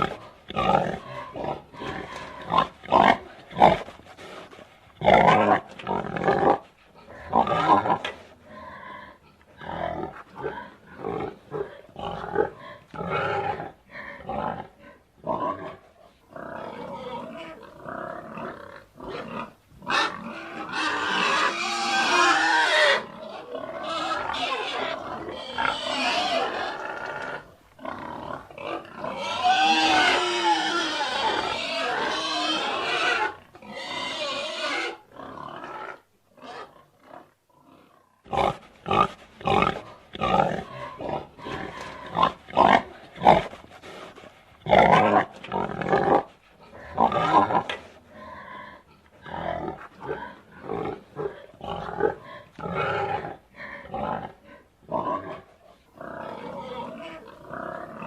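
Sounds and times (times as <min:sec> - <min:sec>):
pigs squealing: 0:16.4 - 0:43.4.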